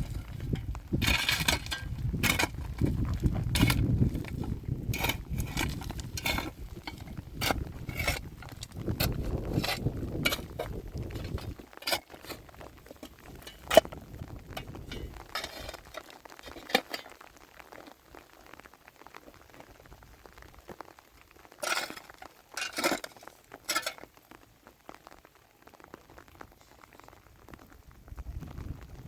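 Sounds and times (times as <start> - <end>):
clinks and knocks: 0.0 - 17.1.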